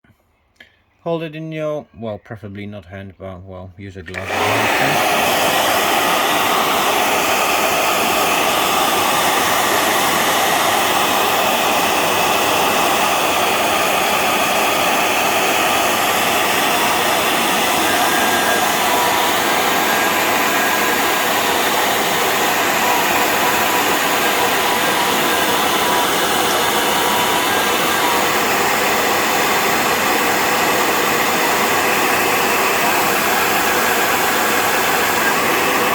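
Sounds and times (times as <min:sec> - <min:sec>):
hair dryer blowing: 0:04.1 - 0:35.9.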